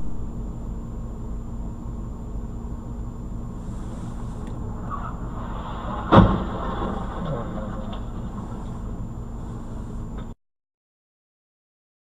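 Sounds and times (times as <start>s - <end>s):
faint constant hum: 0.0s - 10.4s
car cabin rumble: 3.7s - 10.3s.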